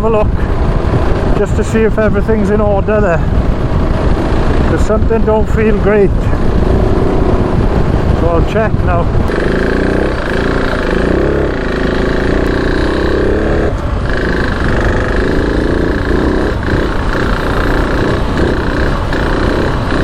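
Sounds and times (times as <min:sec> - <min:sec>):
single-cylinder motorcycle engine revving: 0:03.3 - 0:20.0.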